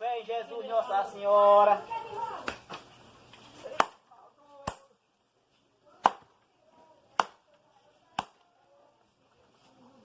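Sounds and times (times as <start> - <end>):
wood being chopped: 3.7 - 4.0, 4.6 - 4.9, 6.0 - 6.4, 7.1 - 7.5, 8.2 - 8.4.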